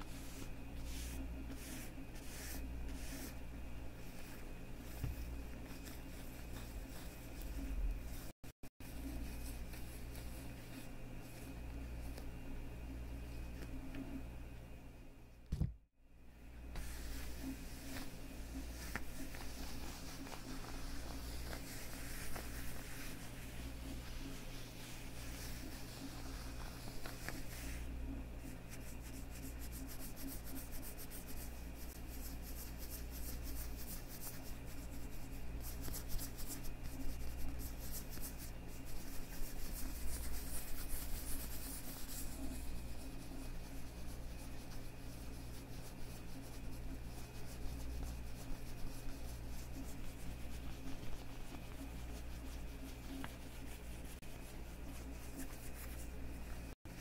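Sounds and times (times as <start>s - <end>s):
leather gloves rubbing: 0.0s - 12.3s, 16.8s - 27.9s.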